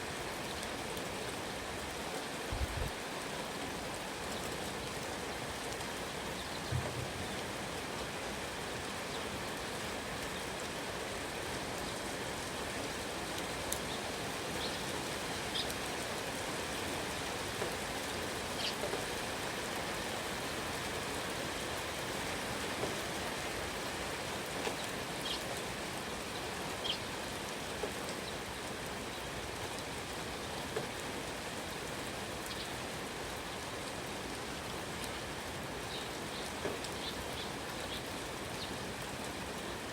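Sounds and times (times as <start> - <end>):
rain falling: 0.0 - 39.9
small birds chirping: 13.7 - 15.8, 18.5 - 18.9, 24.6 - 25.6, 26.3 - 27.1, 32.4 - 32.8, 35.8 - 38.8.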